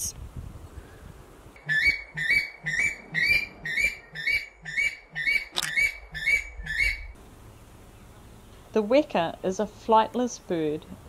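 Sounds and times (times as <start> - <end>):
bird calling short high notes: 1.6 - 7.2.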